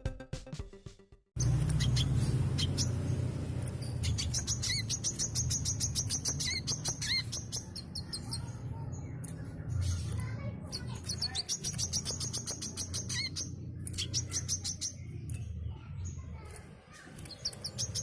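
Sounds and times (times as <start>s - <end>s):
steady low hum: 1.4s - 8.0s
sunbird chirps and trills: 1.4s - 18.0s.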